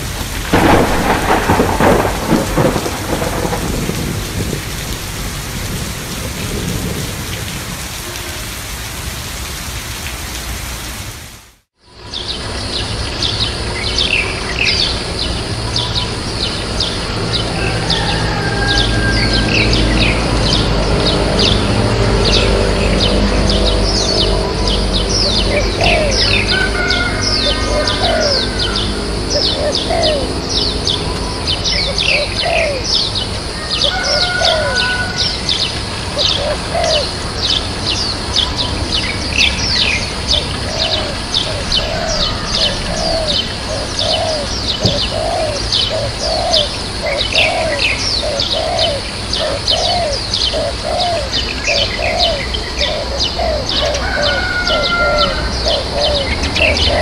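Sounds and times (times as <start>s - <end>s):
small birds chirping: 35.2s - 57.0s.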